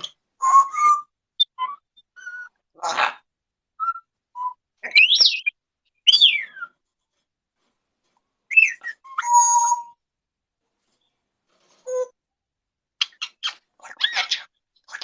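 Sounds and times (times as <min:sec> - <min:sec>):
parrot whistling: 0:00.4 - 0:02.6, 0:08.5 - 0:10.0.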